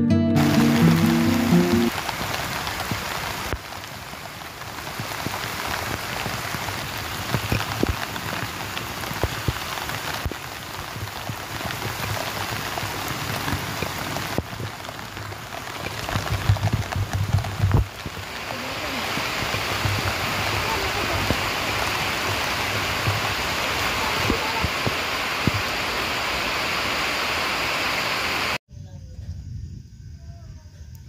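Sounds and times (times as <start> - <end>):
steady rain falling: 0.3 - 28.6
drops ticking and knocking: 4.9 - 23.5.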